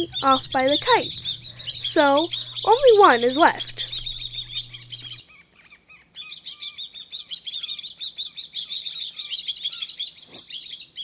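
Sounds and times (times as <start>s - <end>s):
birds chirping: 0.0s - 5.2s.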